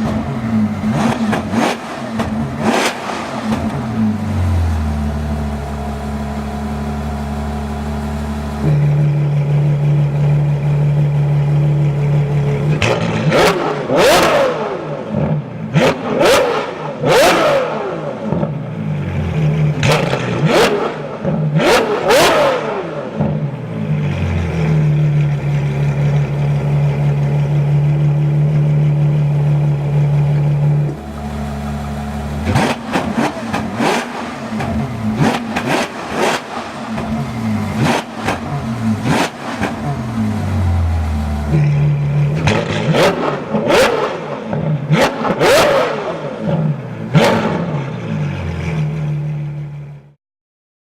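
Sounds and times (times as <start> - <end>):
car engine idling and revving: 0.0 - 50.2.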